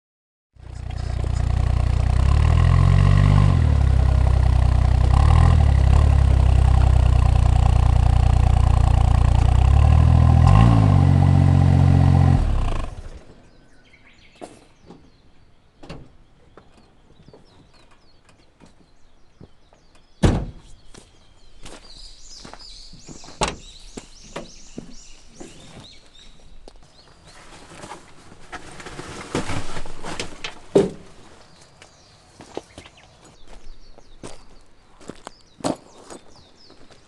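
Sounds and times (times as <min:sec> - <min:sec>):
birds chirping: 0:12.4 - 0:28.1, 0:30.6 - 0:37.0
thuds of objects handled: 0:20.2 - 0:20.8
rustling: 0:25.4 - 0:32.6.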